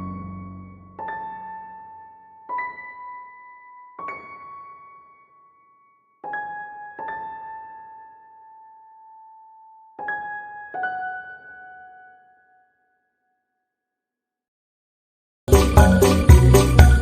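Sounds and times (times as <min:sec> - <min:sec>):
slow solo piano: 0:00.0 - 0:12.8.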